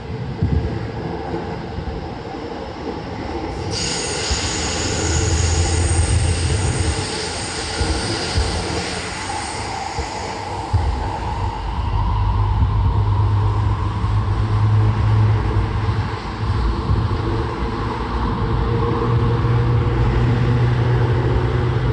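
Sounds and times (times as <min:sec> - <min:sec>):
electric train running: 0:02.8 - 0:21.9
high squeal: 0:03.7 - 0:12.7.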